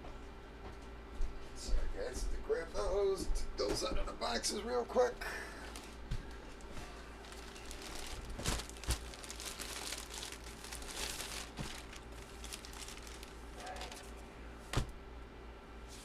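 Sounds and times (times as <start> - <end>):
packaging crinkling and rustling: 5.6 - 14.2.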